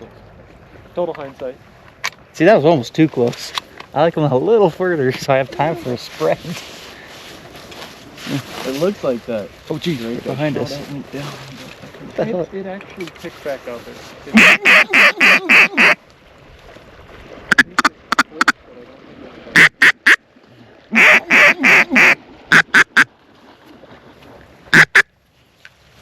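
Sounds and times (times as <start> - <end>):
duck call quacking: 14.3 - 16.0, 17.5 - 18.6, 19.6 - 20.2, 20.9 - 23.1, 24.7 - 25.1.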